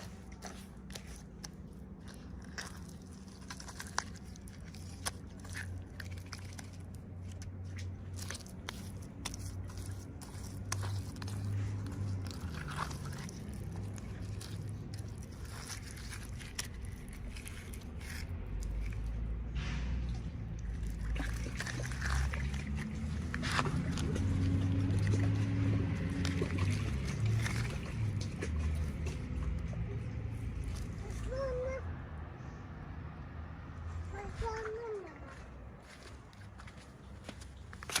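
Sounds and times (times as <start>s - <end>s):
plastic packaging crinkling: 0.0s - 19.3s.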